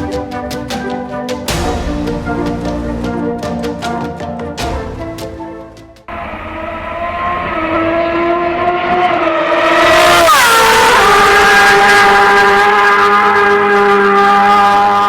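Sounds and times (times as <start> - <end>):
motorcycle engine revving: 6.1 - 15.0.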